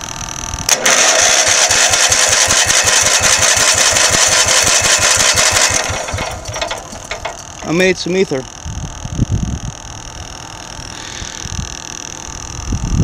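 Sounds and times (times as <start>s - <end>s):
electric starter cranking engine: 0.6s - 7.9s.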